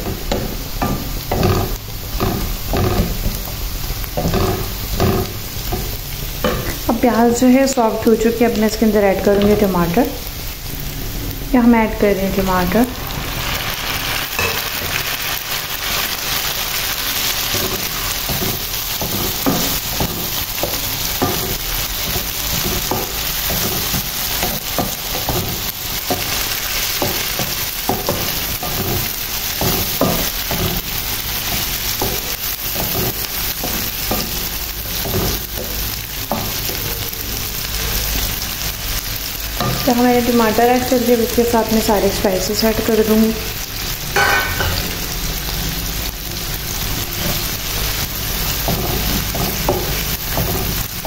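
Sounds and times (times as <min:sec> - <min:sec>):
oil sizzling in a pan: 0:00.0 - 0:51.0
wooden spatula scraping a pan: 0:00.9 - 0:03.6, 0:04.2 - 0:06.8.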